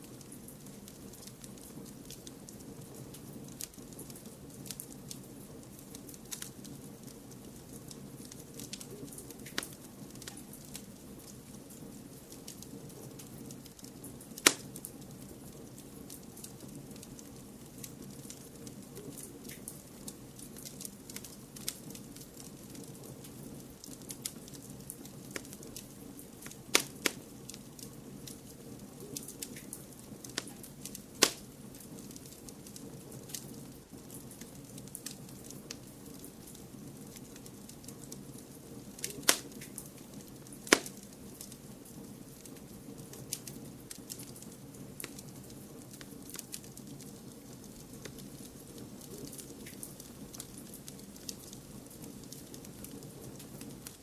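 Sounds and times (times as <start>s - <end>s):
fireplace fire crackling: 0.0s - 54.0s
low background noise: 0.0s - 54.0s.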